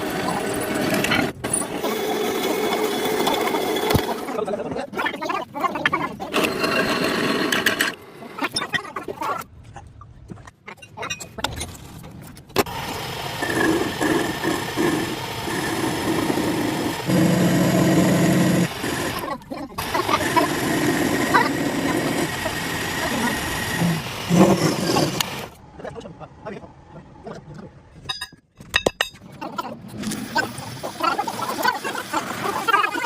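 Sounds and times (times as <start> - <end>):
workshop machinery running: 0.0 - 4.4, 12.6 - 25.6.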